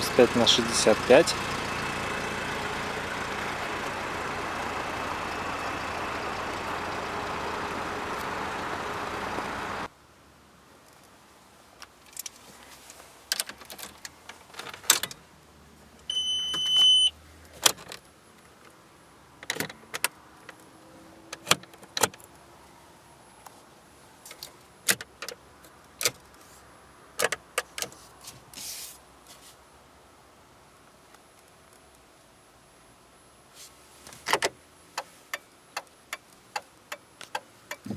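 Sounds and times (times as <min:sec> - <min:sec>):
electronic beep: 0:16.1 - 0:17.1.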